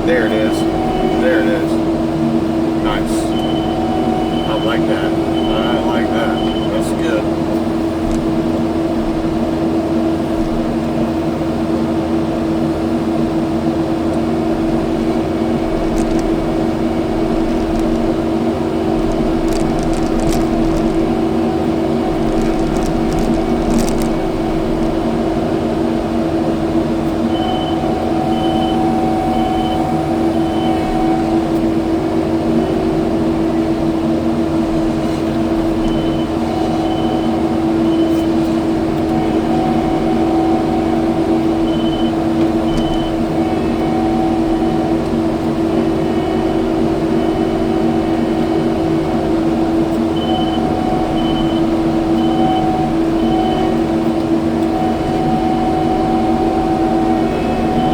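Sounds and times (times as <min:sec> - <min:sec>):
diesel engine and hydraulics humming: 0:00.0 - 0:57.9
short high beeps: 0:02.9 - 0:07.3.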